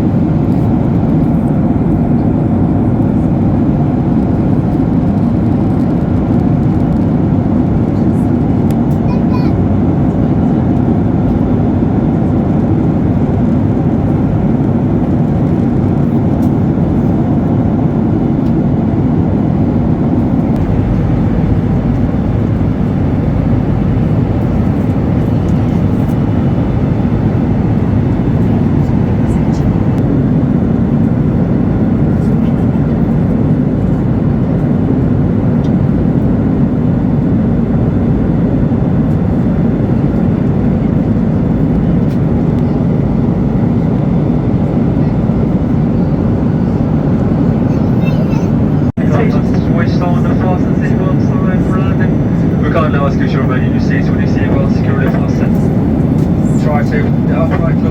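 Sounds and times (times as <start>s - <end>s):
airplane cabin engine drone: 0.0s - 57.9s
air rushing over fuselage: 19.0s - 30.2s.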